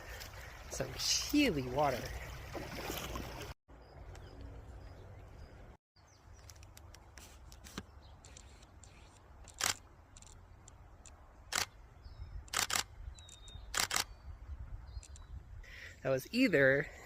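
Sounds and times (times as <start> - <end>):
camera shutter clicks: 9.5 - 10.3, 11.5 - 11.7, 12.5 - 12.9, 13.7 - 14.1.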